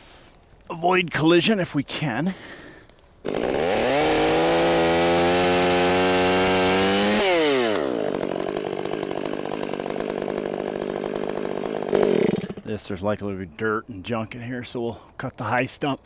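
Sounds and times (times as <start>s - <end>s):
chainsaw revving and idling: 3.2s - 12.7s.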